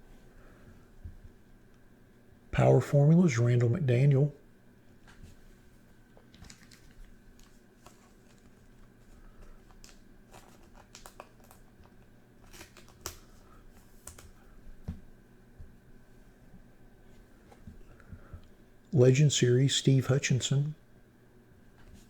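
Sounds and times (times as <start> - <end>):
cards clicking and rustling: 6.3 - 14.4
steady hum: 13.2 - 22.0.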